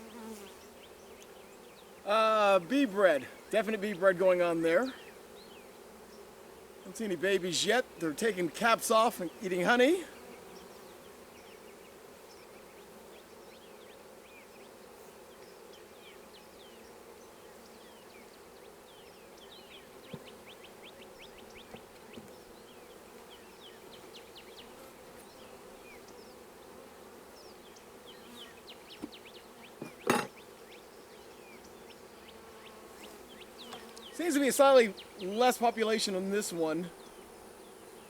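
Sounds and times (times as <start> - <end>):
bees buzzing: 0.0 - 38.0
bees flying past: 0.0 - 38.0.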